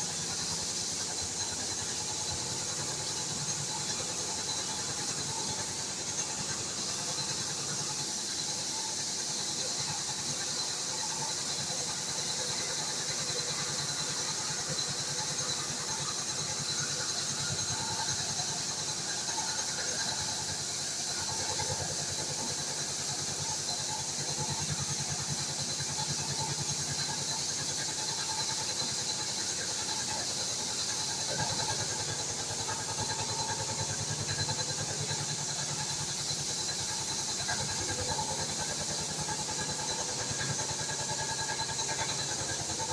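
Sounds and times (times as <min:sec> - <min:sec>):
cnc mill hiss: 0:00.0 - 0:42.9.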